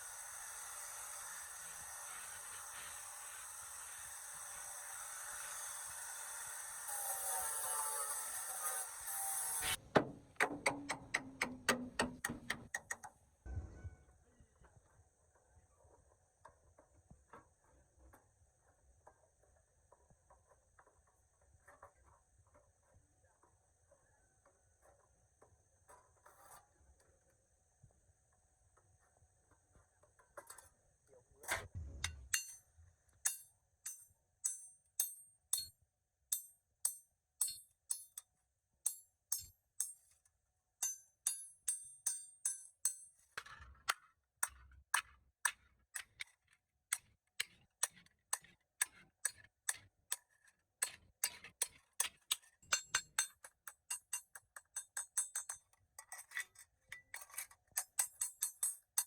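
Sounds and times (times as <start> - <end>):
ringing metallic taps: 10.0 - 13.0.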